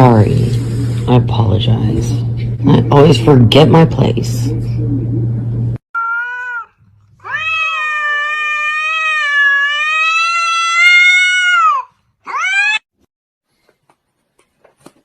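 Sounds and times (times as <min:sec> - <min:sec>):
cat meowing: 0:06.0 - 0:12.8.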